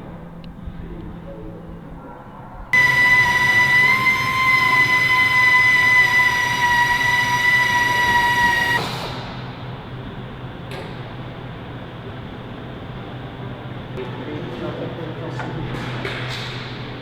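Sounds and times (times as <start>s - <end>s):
click: 2.8s - 8.9s.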